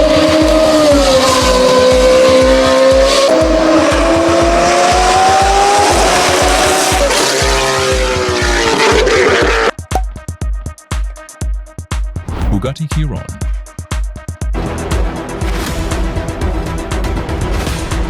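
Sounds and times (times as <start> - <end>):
sports car engine revving: 0.0 - 9.8
background music with thumping beat: 0.0 - 18.0.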